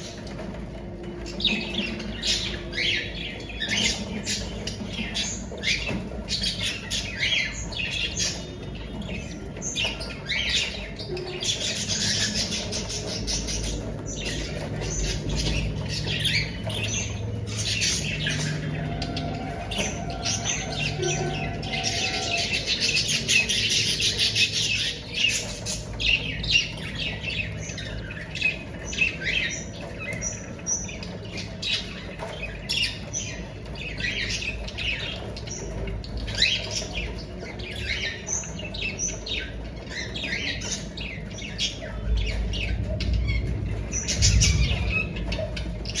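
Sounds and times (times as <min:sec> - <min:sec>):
cockatiels squawking: 0:01.8 - 0:26.8.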